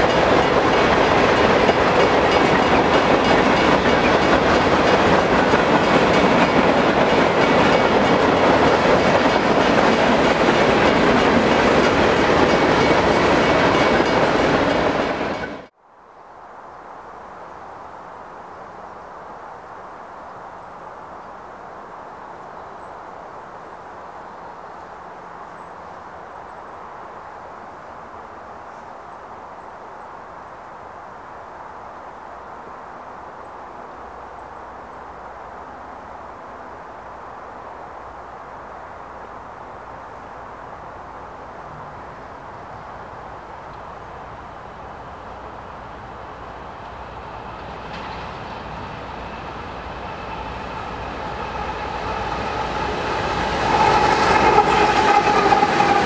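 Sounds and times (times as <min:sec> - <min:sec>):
freight train wheels clacking: 0:00.0 - 0:15.7, 0:46.6 - 0:56.0.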